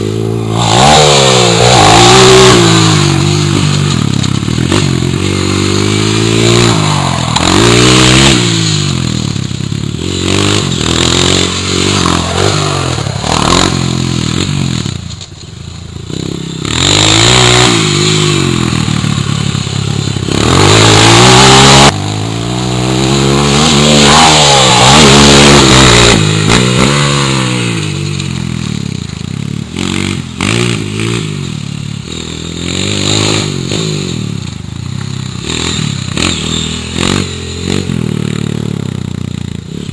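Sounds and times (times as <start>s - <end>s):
loud rushes of noise: 0.0s - 15.2s
dirt bike engine revving: 0.0s - 39.9s.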